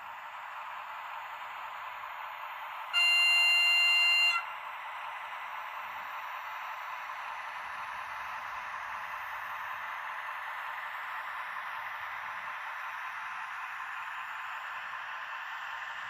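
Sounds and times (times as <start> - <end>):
locomotive horn: 2.9 - 4.5.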